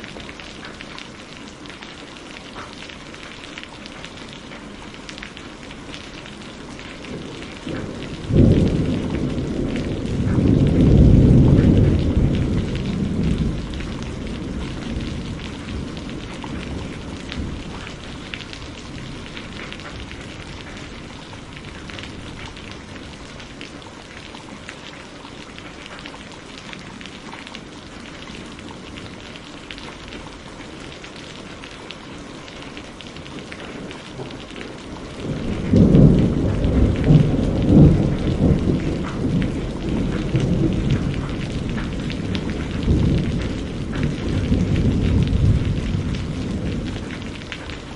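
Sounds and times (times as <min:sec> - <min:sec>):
steady rain falling: 0:00.0 - 0:47.9
thunder rumbling: 0:06.1 - 0:23.8, 0:32.8 - 0:47.9.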